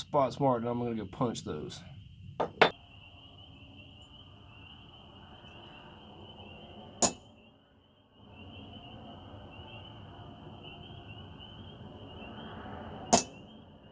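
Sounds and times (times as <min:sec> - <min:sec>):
hammer striking metal punch: 0:02.4 - 0:02.8, 0:07.0 - 0:07.3, 0:13.1 - 0:13.4.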